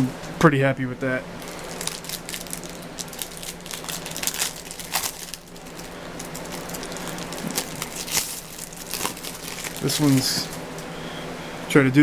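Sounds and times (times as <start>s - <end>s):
steady low hum: 0.0s - 12.0s
card pack packaging crinkling: 1.4s - 10.8s.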